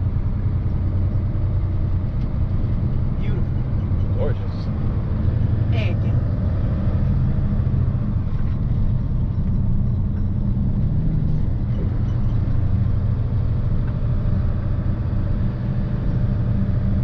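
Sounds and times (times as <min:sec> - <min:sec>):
road noise: 0:00.0 - 0:17.0
truck engine rumble: 0:00.0 - 0:17.0.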